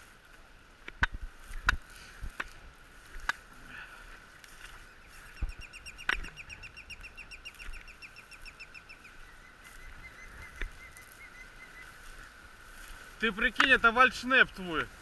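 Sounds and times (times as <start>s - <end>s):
songbird trilling: 4.8s - 15.0s.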